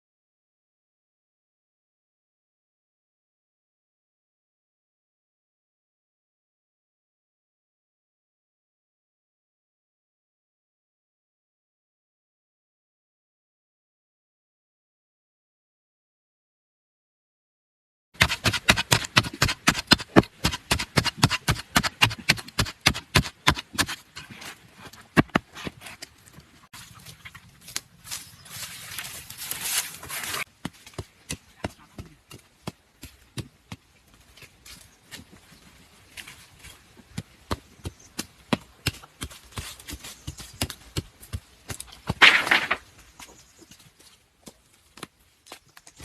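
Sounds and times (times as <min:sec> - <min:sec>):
blade chopping bamboo: 0:18.2 - 0:26.1.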